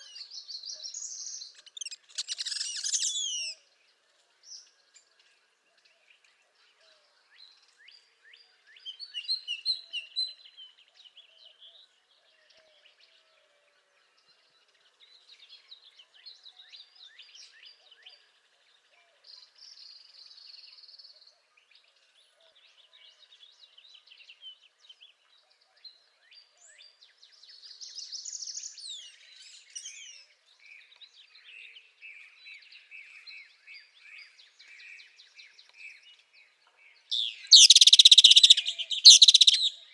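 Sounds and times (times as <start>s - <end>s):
songbirds singing: 0.0s - 39.9s
rapid bird trill: 1.6s - 3.5s, 37.5s - 39.7s.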